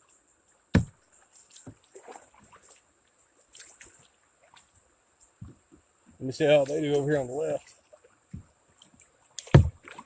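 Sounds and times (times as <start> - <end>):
paddle splashes and drips: 0.0 - 10.0
sharp knock: 9.4 - 9.8.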